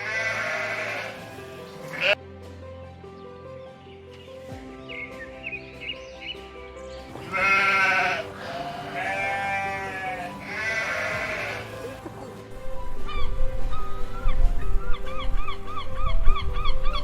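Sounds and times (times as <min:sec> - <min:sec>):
sheep bleating: 0:00.0 - 0:02.2, 0:07.2 - 0:12.0
background music: 0:00.0 - 0:17.0.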